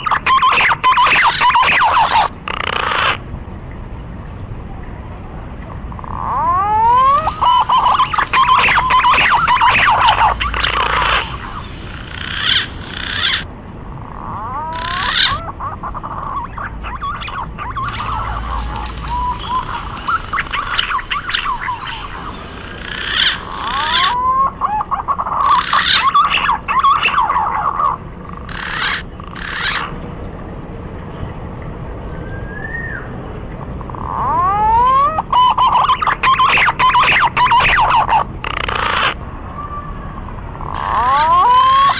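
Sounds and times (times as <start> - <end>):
pigeons whistling calls: 0.0 - 3.2, 6.0 - 13.5, 14.4 - 29.9, 32.2 - 33.1, 34.0 - 39.2, 40.6 - 41.9.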